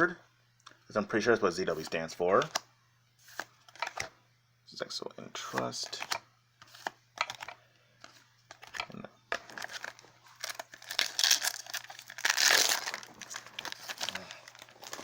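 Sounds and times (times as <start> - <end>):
foil wrappers crinkling: 9.4 - 15.0.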